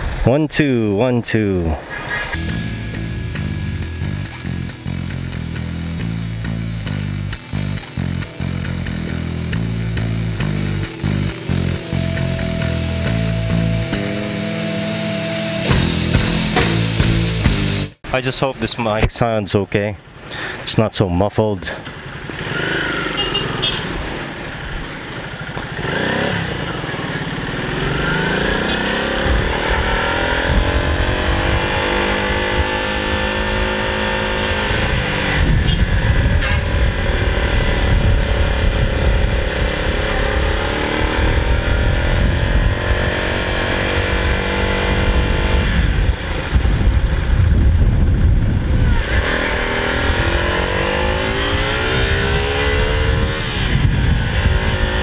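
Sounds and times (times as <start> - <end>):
motorcycle engine accelerating: 2.2 - 18.0, 22.0 - 55.0
wind rumble on microphone: 34.6 - 50.7, 51.3 - 55.0.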